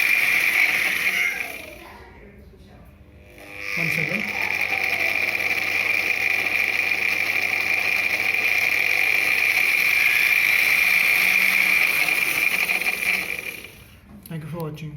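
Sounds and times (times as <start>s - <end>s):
mixer grinder motor whining: 0.0s - 14.1s.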